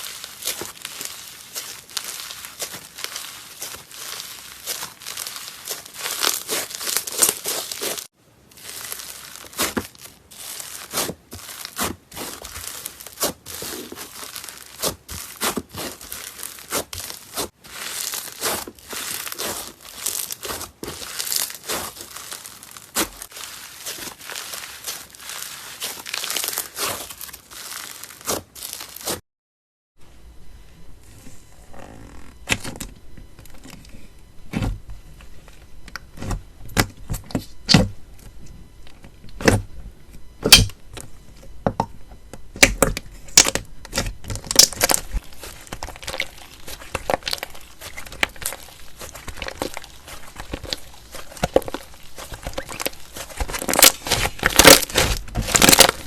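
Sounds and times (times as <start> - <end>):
slime squeezed crackling pops: 42.6 - 56.0.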